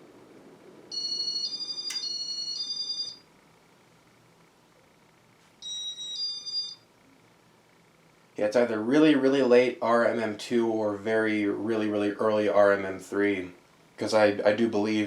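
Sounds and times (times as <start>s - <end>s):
sharp click: 1.9s - 2.1s.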